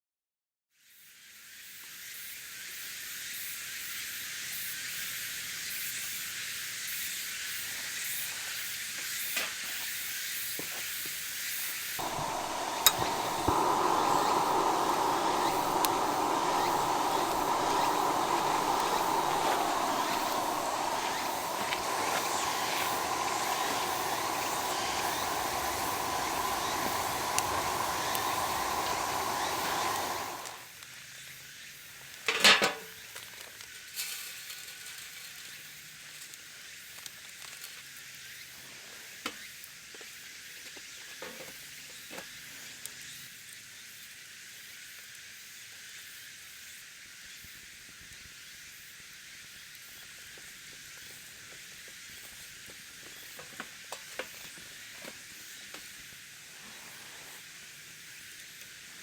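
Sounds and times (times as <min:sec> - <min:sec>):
meat sizzling in a pot: 0:00.9 - 0:30.7
light ticks: 0:12.0 - 0:30.6.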